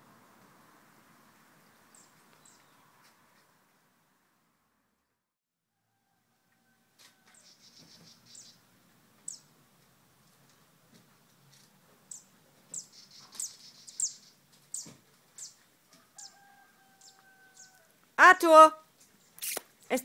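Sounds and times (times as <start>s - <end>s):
small birds chirping: 0.9s - 3.5s, 7.3s - 9.6s, 10.3s - 17.9s, 19.0s - 20.0s.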